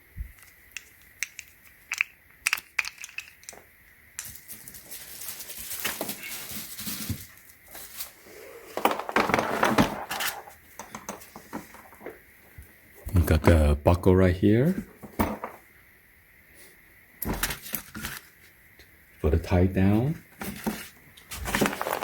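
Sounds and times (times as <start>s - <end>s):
packaging crinkling and tearing: 4.2s - 8.2s, 21.3s - 22.0s.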